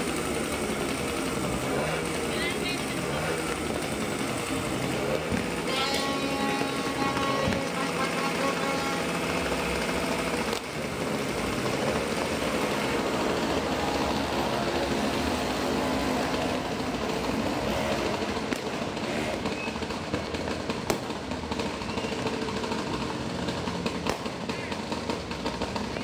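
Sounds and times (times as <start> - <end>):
distant firecrackers and fireworks: 0.0 - 26.0
sharp firecracker pops: 20.7 - 22.1, 23.9 - 24.5.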